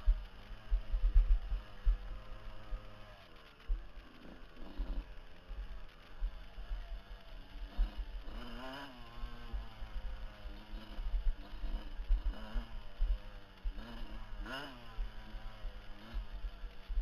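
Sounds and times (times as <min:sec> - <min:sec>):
heavy uneven low rumble: 0:00.0 - 0:17.0
motorcycle engine revving: 0:00.0 - 0:17.0.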